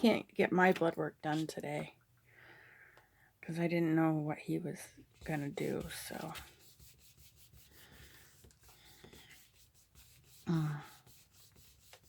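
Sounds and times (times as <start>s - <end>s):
paper rustling: 5.2s - 12.0s.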